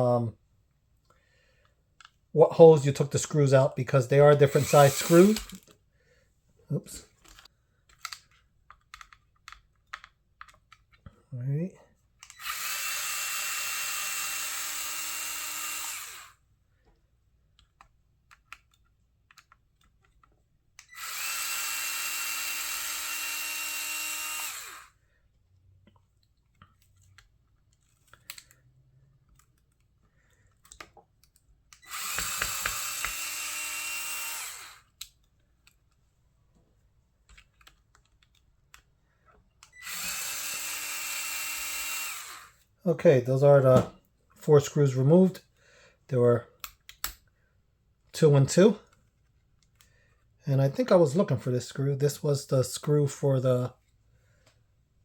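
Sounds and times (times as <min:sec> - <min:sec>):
electric screwdriver whining: 0:04.0 - 0:05.7, 0:12.2 - 0:16.4, 0:20.8 - 0:25.0, 0:31.8 - 0:35.0, 0:39.7 - 0:42.6.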